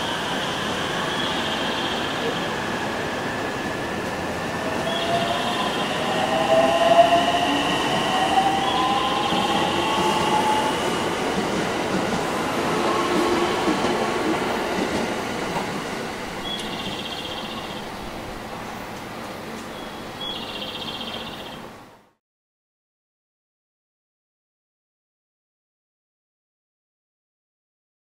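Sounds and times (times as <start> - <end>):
wheels rumbling on rail: 0.0 - 22.0.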